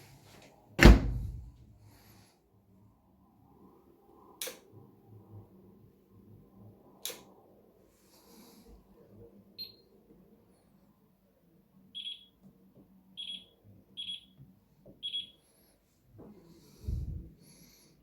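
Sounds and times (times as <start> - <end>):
low thump: 0.8 - 1.6.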